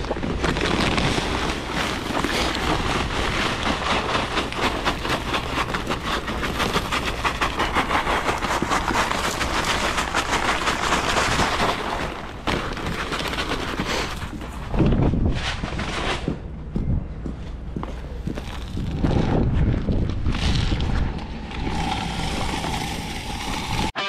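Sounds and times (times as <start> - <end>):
rock salt ticking on pavement: 0.0 - 14.7, 19.9 - 23.9
wind noise: 0.0 - 24.0.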